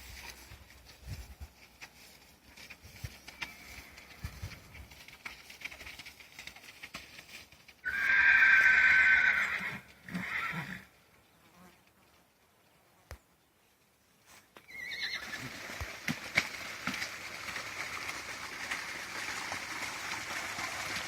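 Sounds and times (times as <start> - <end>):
horse whinnying: 7.8 - 10.9, 14.6 - 15.6.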